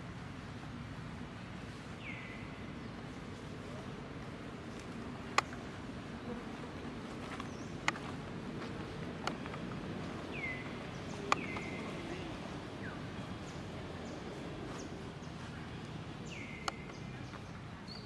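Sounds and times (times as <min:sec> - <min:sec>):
steady background noise: 0:00.0 - 0:18.0
sharp clicks: 0:11.2 - 0:11.8.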